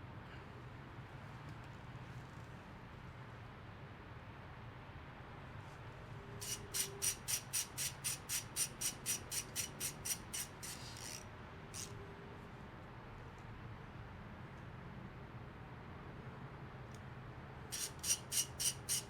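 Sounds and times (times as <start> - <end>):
ratchet wrench clicking: 6.4 - 12.0, 17.7 - 19.0.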